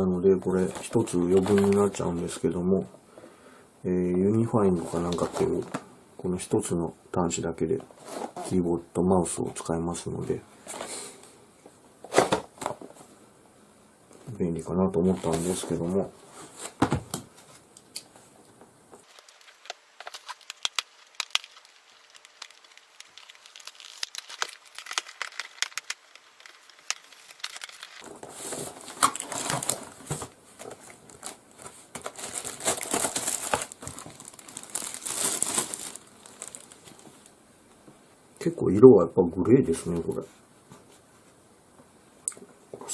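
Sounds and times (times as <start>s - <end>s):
packaging crinkling: 0.6s - 2.2s, 19.0s - 37.3s.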